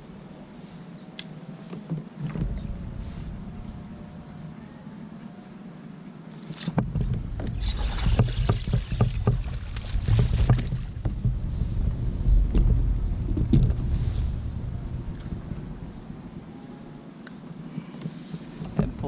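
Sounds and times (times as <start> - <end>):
knocks and handling noise on kayak: 1.6 - 3.8, 6.6 - 14.4, 17.8 - 19.0
wind rumble on microphone: 1.8 - 5.4, 6.7 - 19.0.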